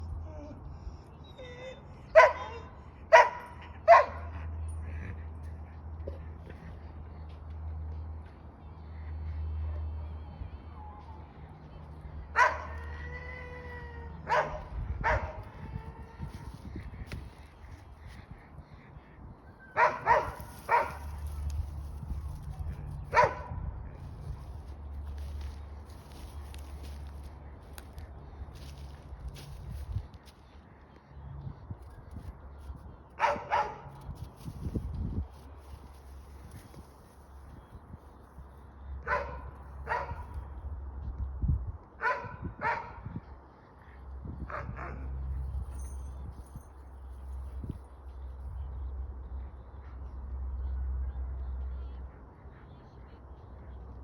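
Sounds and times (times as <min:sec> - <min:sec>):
small dog barking: 0:02.2 - 0:04.3, 0:12.4 - 0:12.8, 0:14.3 - 0:15.4, 0:19.8 - 0:21.1, 0:23.1 - 0:23.6, 0:33.2 - 0:33.9, 0:39.1 - 0:40.2, 0:42.0 - 0:43.0.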